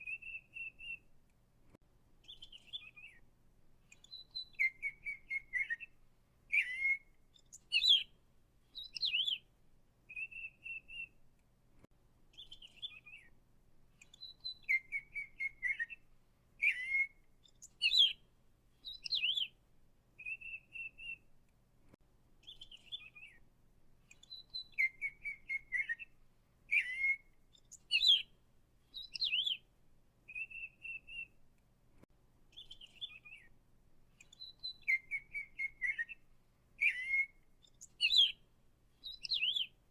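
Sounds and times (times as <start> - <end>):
songbird singing: 0.0 - 1.4, 2.1 - 21.6, 22.4 - 31.6, 32.5 - 39.9.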